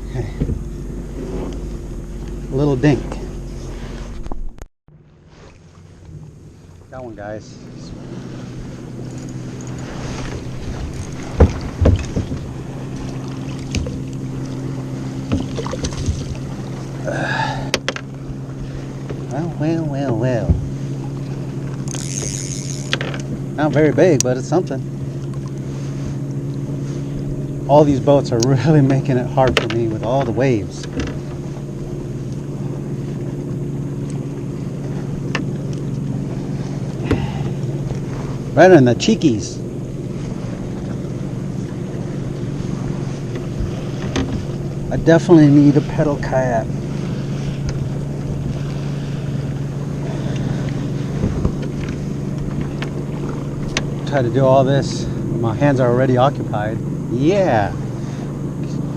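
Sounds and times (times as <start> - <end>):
motorboat engine droning: 0.0 - 58.9
sharp knocks: 10.3 - 12.5.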